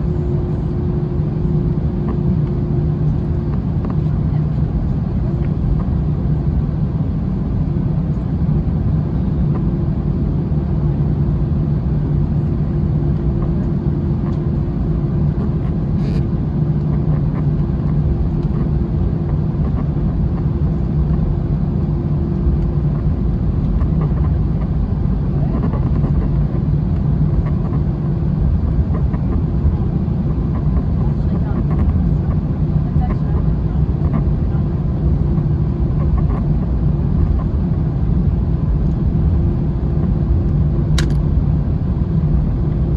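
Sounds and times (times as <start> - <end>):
jet engines humming in cabin: 0.0 - 42.9
brief click: 41.0 - 41.2.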